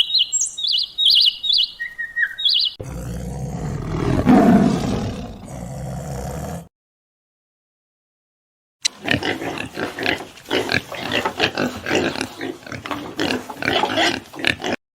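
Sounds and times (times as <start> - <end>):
pigs grunting and squealing: 2.8 - 6.7, 8.9 - 14.8.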